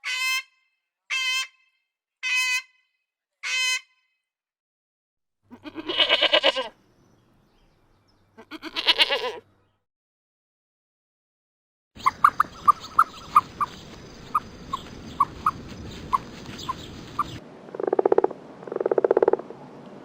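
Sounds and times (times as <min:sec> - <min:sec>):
sheep or goat bleating: 0:05.5 - 0:06.8, 0:08.4 - 0:09.5.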